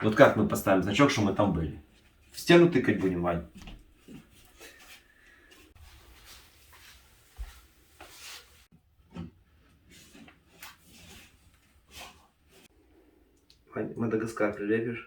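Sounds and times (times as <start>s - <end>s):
light rubs and soft taps: 3.0s - 8.7s.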